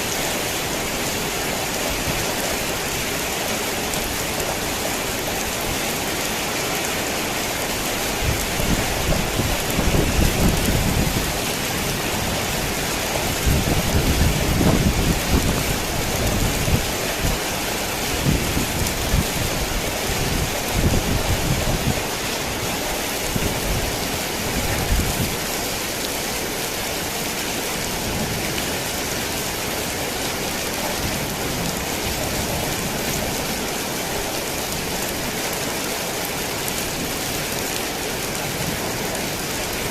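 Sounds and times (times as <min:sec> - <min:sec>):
heavy rain on a tin roof: 0:00.0 - 0:39.9
thunder rumbling: 0:08.2 - 0:17.2.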